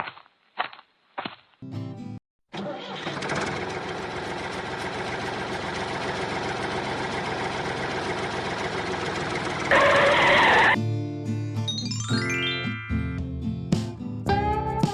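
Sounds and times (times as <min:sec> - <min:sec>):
tractor engine running: 0:02.5 - 0:10.8.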